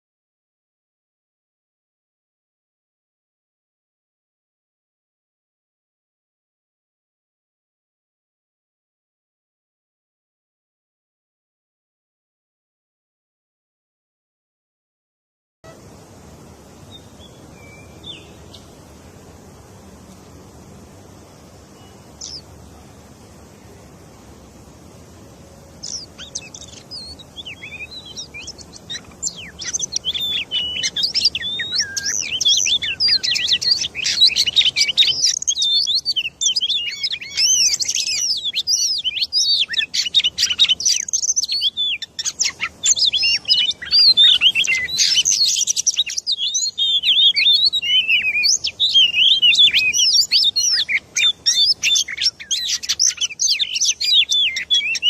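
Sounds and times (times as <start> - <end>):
bird chirping rapidly: 16.6 - 19.7, 20.9 - 23.8, 25.4 - 55.0.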